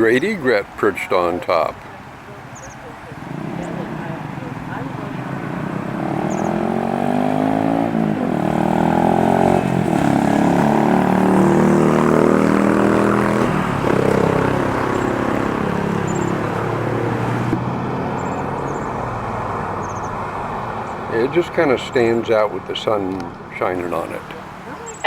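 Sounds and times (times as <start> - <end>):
passing engine drone: 2.9 - 21.7.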